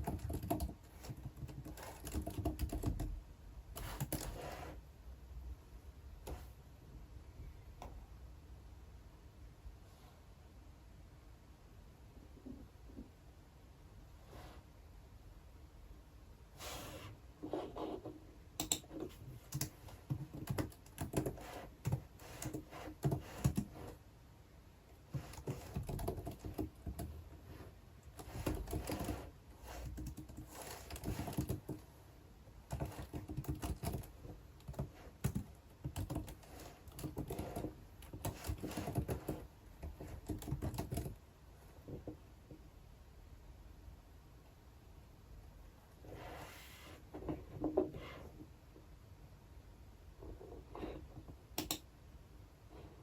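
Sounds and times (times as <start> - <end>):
typing on computer keyboard: 0.0 - 3.2, 3.8 - 4.4, 18.6 - 23.9, 25.2 - 27.2, 28.2 - 31.8, 32.7 - 41.2, 51.6 - 51.9.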